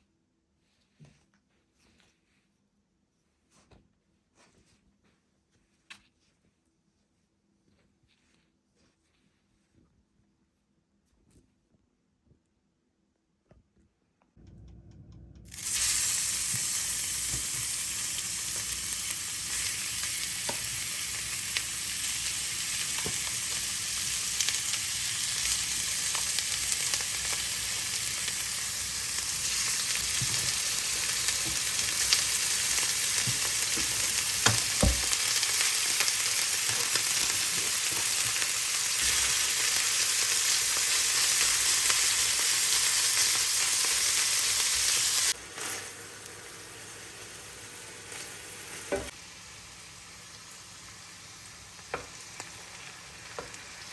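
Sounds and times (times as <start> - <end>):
food sizzling in a pan: 15.5 - 53.9.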